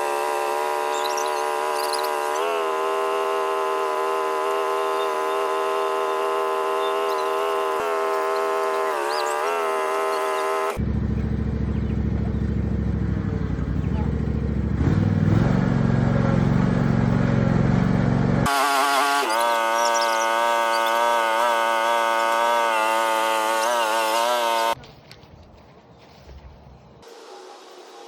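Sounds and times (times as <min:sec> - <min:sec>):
high-pitched small engine: 0:00.0 - 0:11.9, 0:15.6 - 0:24.8
lower engine revving: 0:00.0 - 0:24.8.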